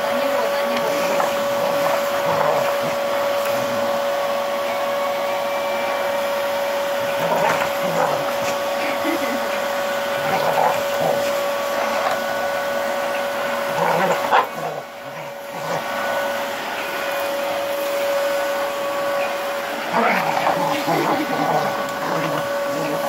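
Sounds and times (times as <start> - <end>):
vacuum cleaner whining: 0.0 - 23.0
dog barking and whining: 6.9 - 16.3, 18.8 - 23.0.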